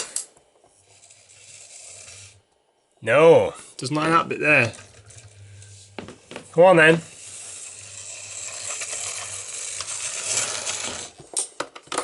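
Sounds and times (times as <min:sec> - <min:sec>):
model train motor whirring: 0:00.8 - 0:02.5, 0:03.9 - 0:06.0, 0:06.8 - 0:11.2.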